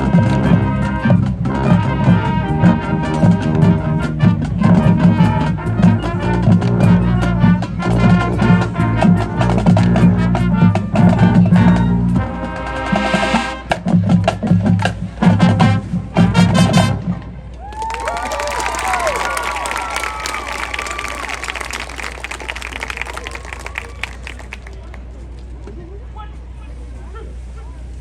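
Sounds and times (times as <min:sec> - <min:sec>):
marching band brass: 0:00.0 - 0:13.9, 0:17.9 - 0:24.7.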